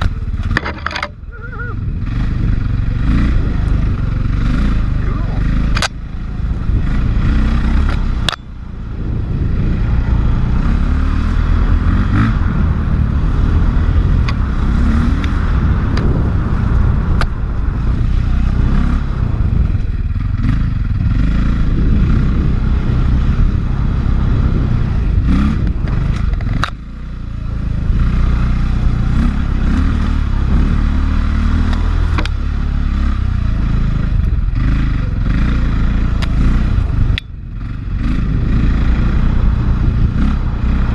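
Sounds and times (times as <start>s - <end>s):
dirt bike engine under load: 0.0s - 1.4s
clicks and clatter over rough ground: 0.0s - 8.6s, 14.2s - 17.7s, 25.4s - 27.2s, 28.1s - 32.6s, 33.6s - 38.2s.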